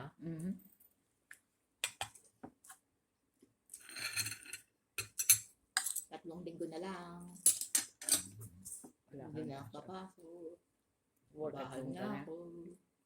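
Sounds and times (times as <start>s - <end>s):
cutlery clinking on plates: 3.8s - 6.1s, 7.5s - 8.3s
cutlery scraping: 3.8s - 6.1s, 7.4s - 8.4s.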